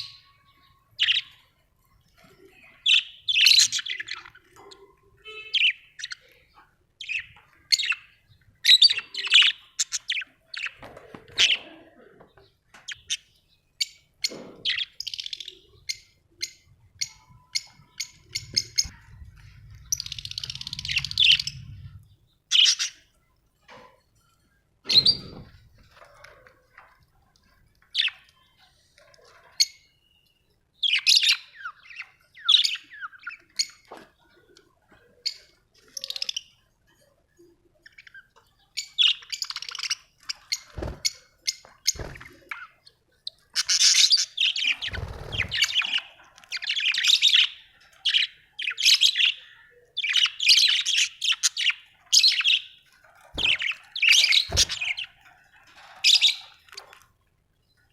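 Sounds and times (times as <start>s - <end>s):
budgerigars chirping and chattering: 0.0s - 1.5s, 2.6s - 10.8s, 12.4s - 23.1s, 27.9s - 28.7s, 37.8s - 57.0s.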